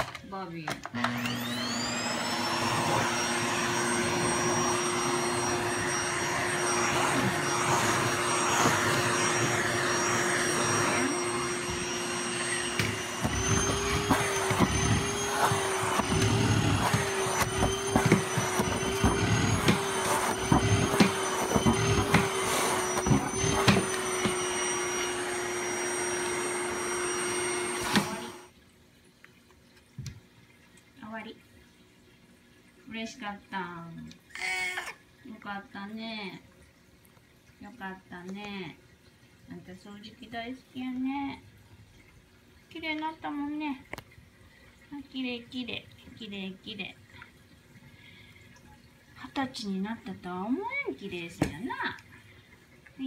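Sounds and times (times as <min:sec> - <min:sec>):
vacuum cleaner running: 0:00.8 - 0:28.6.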